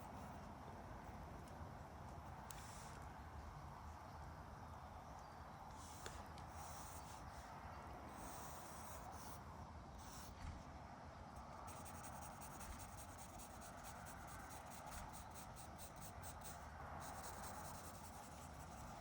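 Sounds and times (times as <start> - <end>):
distant road traffic hum: 0.0 - 19.0
pen scratching on paper: 5.8 - 7.4, 8.1 - 9.4, 10.0 - 10.4, 11.4 - 19.0.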